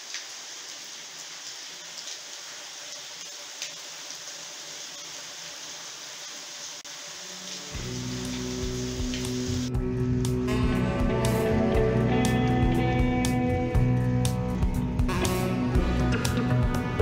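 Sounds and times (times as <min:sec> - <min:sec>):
water drips ticking: 0:00.0 - 0:04.4, 0:07.4 - 0:15.1
heavy rain downpour: 0:00.0 - 0:09.7.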